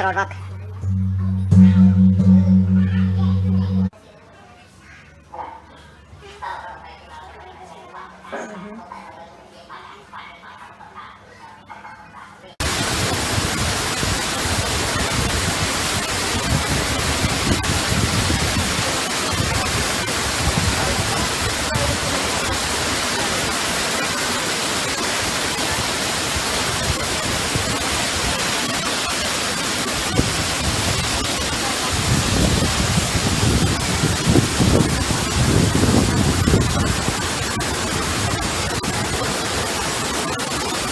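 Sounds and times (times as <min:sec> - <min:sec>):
low rumbles: 0:00.0 - 0:03.9
waterfall rushing: 0:12.6 - 0:40.9.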